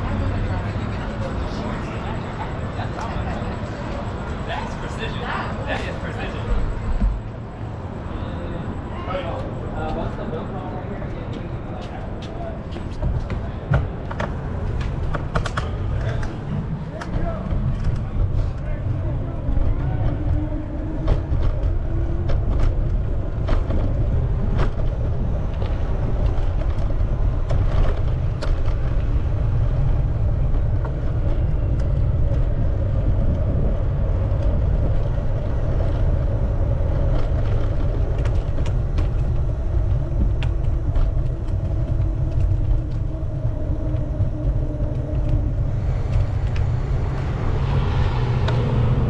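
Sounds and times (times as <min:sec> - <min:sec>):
bicycle road noise: 0:00.0 - 0:49.0
wind rumble on microphone: 0:00.0 - 0:49.0
steady hum: 0:25.0 - 0:49.0.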